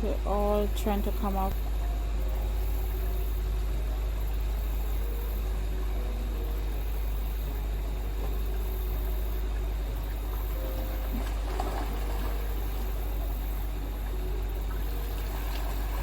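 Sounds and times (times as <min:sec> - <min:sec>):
fast-flowing river water: 0:05.1 - 0:16.0.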